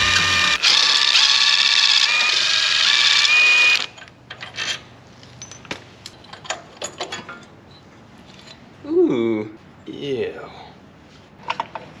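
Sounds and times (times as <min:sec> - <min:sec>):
music: 0:00.0 - 0:00.8.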